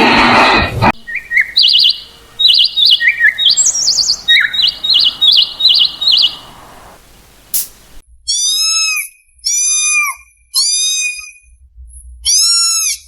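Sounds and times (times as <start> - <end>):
songbird warbling trills: 1.0 - 8.0.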